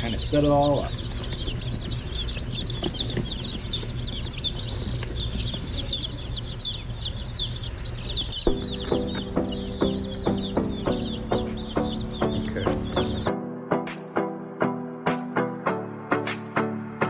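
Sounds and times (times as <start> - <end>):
baby chicks peeping: 0.0 - 13.3
steady low hum: 0.0 - 13.3
lower repeated notes: 0.5 - 17.0.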